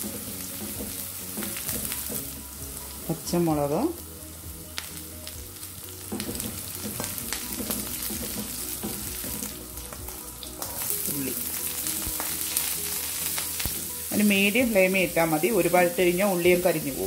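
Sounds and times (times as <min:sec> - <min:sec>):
food sizzling in oil: 0:00.0 - 0:17.0
spatula stirring in pan: 0:05.9 - 0:13.8.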